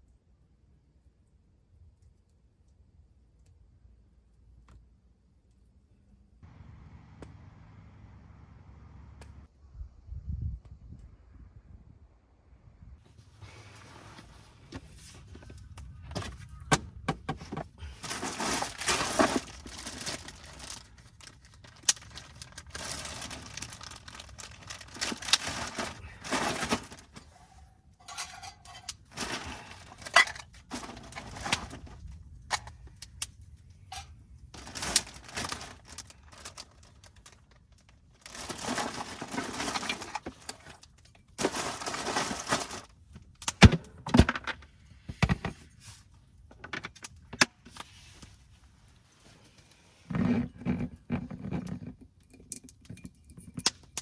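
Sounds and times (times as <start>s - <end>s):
gear rustling and clinking: 18.0s - 32.8s.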